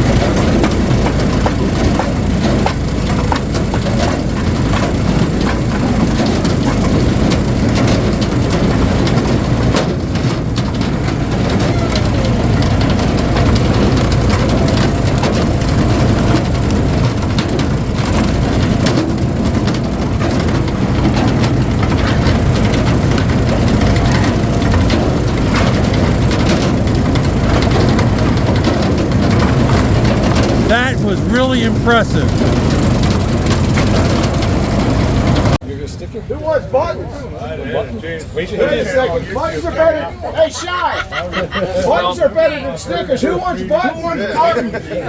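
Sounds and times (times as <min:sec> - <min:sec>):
hydraulic log splitter engine: 0:00.0 - 0:35.6.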